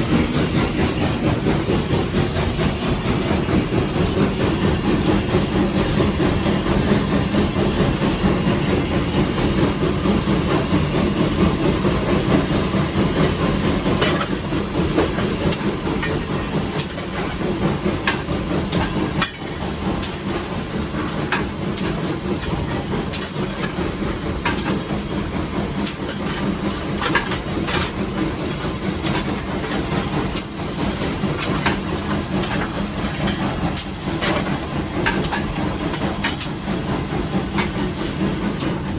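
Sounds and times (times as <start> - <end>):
steam locomotive rumble and hiss: 0.0 - 38.9
sharp clicks and knocks: 25.7 - 36.9.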